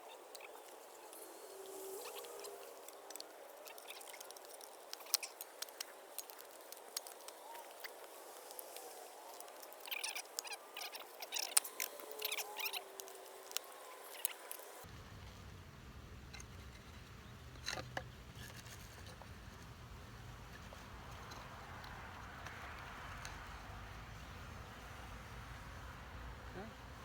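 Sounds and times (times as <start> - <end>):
bees buzzing: 0.0 - 14.8
handling taps and clicks: 2.6 - 14.6.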